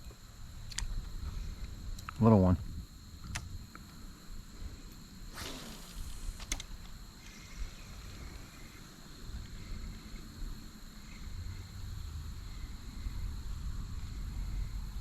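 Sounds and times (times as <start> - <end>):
thin high hum: 2.6 - 15.0
steady low rumble: 7.0 - 15.0.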